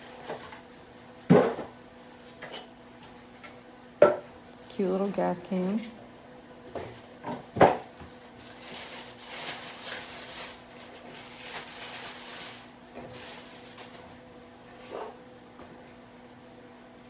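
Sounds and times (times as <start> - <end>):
packaging rustling: 6.9 - 15.0.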